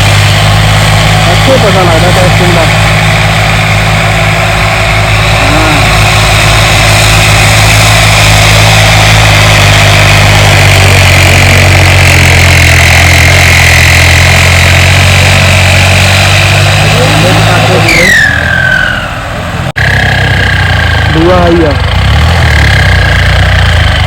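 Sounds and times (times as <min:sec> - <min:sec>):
diesel tractor engine running: 0:00.0 - 0:24.0
high whine: 0:00.0 - 0:24.0.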